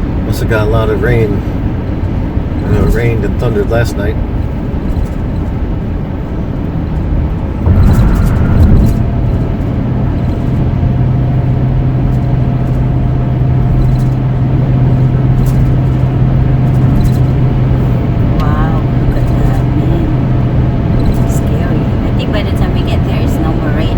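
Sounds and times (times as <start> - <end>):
low engine hum: 0.0 - 23.9
tyre and wind rush: 4.0 - 19.6.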